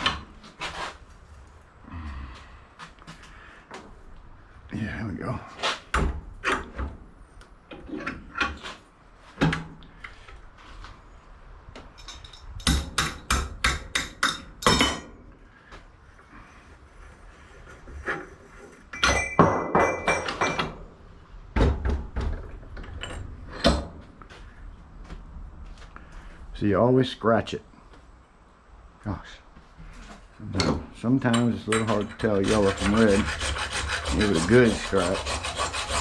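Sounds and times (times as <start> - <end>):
scrap metal knocking and clanking: 17.6 - 20.9, 30.5 - 34.6
metal scratching: 31.3 - 36.0.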